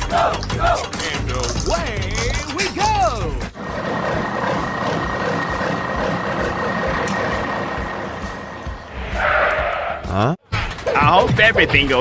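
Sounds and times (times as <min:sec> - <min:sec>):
heavy vehicle engine running: 0:03.5 - 0:09.2
thin constant whine: 0:03.6 - 0:09.0.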